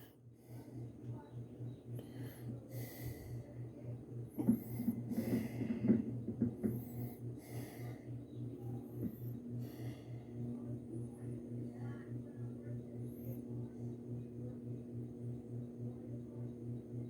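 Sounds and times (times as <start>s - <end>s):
washing machine spin cycle: 0.0s - 17.0s.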